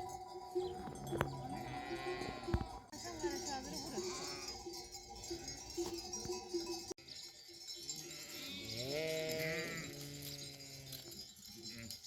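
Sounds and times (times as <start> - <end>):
sheep bells clinking: 0.0 - 12.0
sheep bleating: 1.2 - 2.8, 3.9 - 4.6, 8.1 - 11.1.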